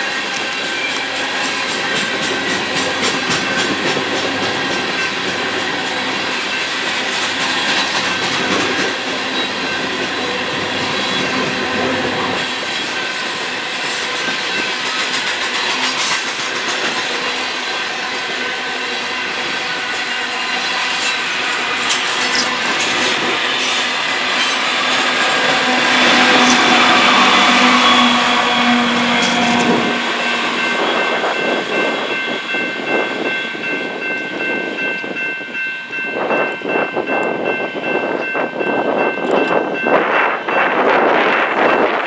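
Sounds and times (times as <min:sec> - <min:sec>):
train wheel squeal: 0:00.0 - 0:17.8, 0:18.5 - 0:35.3
train wheels clicking over rail joints: 0:00.3 - 0:10.7, 0:13.9 - 0:17.5, 0:19.5 - 0:32.1.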